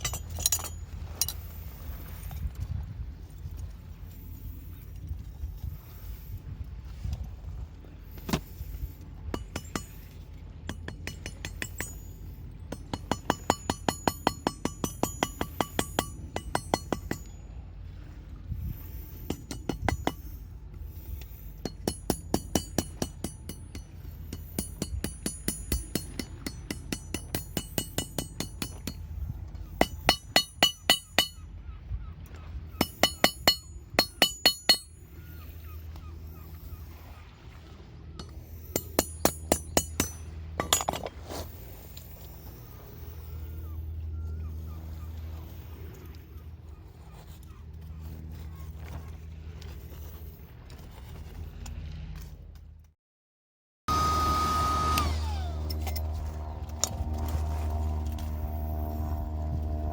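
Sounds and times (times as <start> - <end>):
hammer ringing on anvil: 9.4 - 10.0, 10.7 - 17.4, 21.6 - 29.0, 29.8 - 31.4, 32.8 - 35.0, 38.2 - 41.0.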